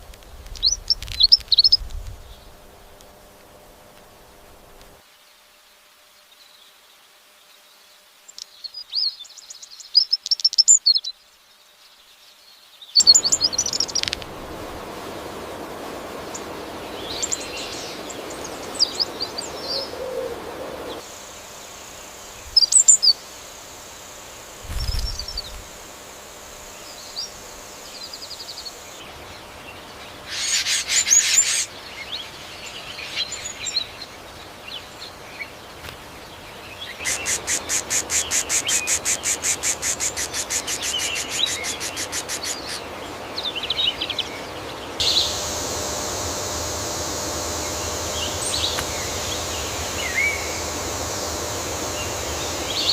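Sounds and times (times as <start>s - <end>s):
forest ambience hiss: 0.0s - 52.9s
birds twittering: 11.9s - 52.9s.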